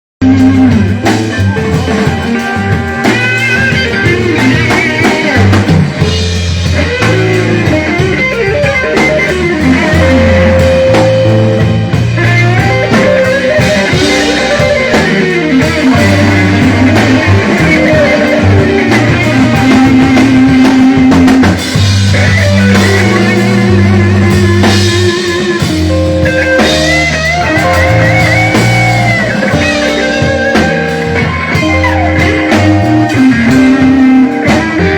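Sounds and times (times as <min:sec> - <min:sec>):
bass line: 0:00.2 - 0:34.9
drum kit: 0:00.2 - 0:34.9
electric guitar lead: 0:00.2 - 0:34.9.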